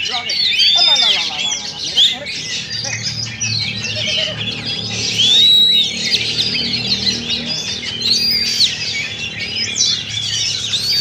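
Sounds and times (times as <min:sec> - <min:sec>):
songbirds chirping and whistling: 0:00.0 - 0:11.0
loud arching bird whistle: 0:03.4 - 0:11.0.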